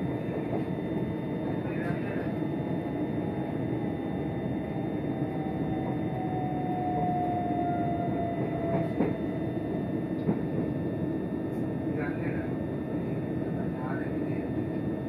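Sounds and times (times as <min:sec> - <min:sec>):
electric train running rumble: 0:00.0 - 0:15.0.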